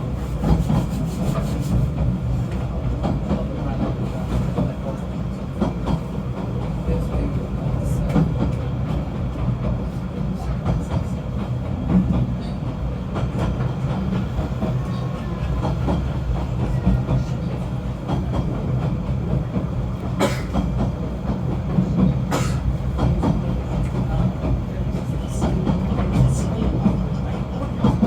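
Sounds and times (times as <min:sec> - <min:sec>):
train rumbling: 0:00.0 - 0:28.0.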